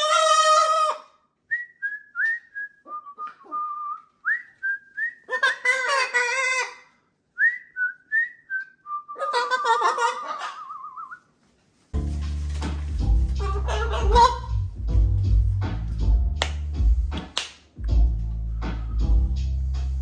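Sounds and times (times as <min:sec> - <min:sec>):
harsh parrot calls: 0:05.3 - 0:06.9, 0:09.2 - 0:11.0, 0:13.4 - 0:14.7
parrot whistling: 0:07.4 - 0:11.2, 0:13.4 - 0:14.6.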